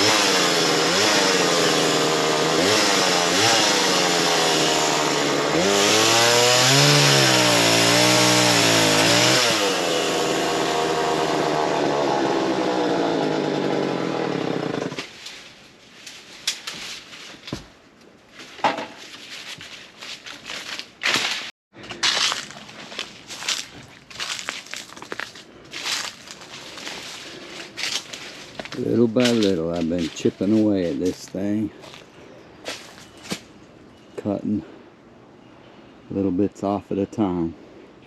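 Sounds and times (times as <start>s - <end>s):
chainsaw cutting wood: 0.0s - 15.1s.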